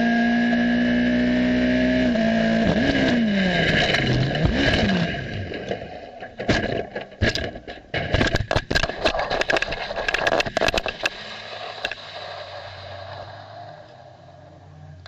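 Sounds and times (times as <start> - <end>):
racing car engine: 0.0 - 6.7
racing car crashing: 2.6 - 14.7.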